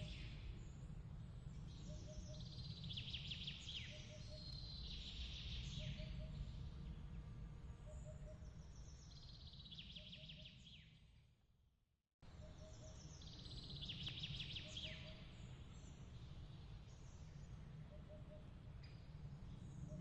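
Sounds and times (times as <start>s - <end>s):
low steady rumble: 0.0s - 9.8s.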